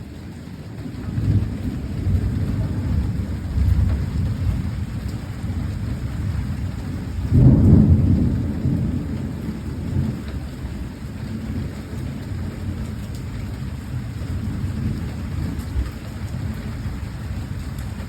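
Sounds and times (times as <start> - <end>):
steady rain: 0.0 - 18.0
thunder rumbling: 0.8 - 18.0
thunder clap: 1.2 - 10.4.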